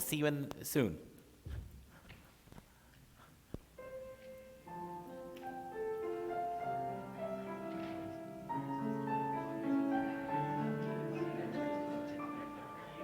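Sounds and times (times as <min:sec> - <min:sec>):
keyboard playing slow held chords: 0:03.9 - 0:13.0.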